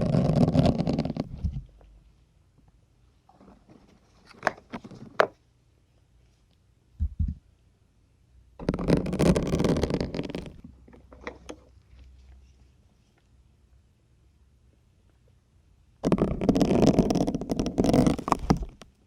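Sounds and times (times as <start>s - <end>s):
low thumps: 7.0s - 7.4s.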